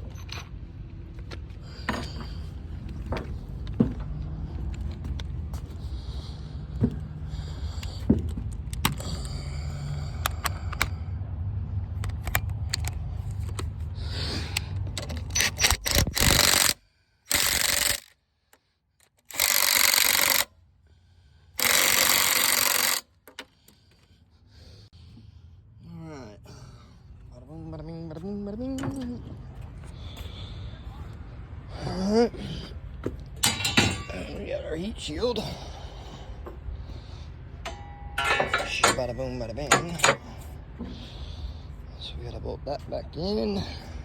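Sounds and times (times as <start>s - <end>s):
tools knocking against metal: 33.4s - 34.3s, 37.6s - 40.4s.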